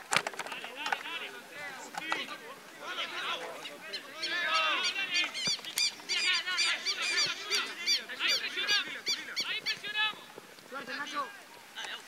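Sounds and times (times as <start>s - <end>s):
faint voices: 0.3s - 12.0s
harsh bird calls: 2.9s - 10.0s.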